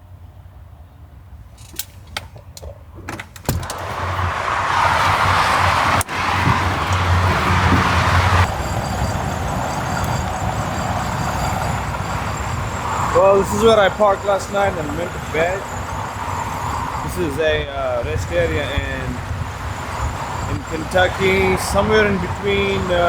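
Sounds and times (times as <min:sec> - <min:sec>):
highway traffic rushing: 0:00.1 - 0:23.0
door latch clicks: 0:03.1 - 0:03.9.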